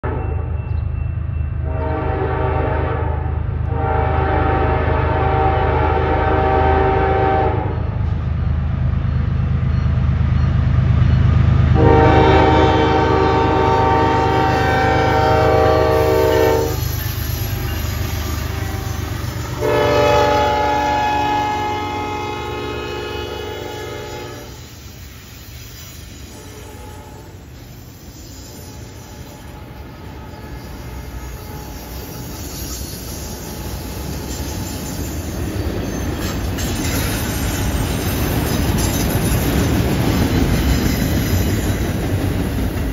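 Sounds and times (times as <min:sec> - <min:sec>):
locomotive horn blasts: 0:00.0 - 0:00.6, 0:01.6 - 0:07.8, 0:11.8 - 0:16.8, 0:18.3 - 0:24.6, 0:26.3 - 0:27.4
diesel locomotive low rumble: 0:00.0 - 0:42.9.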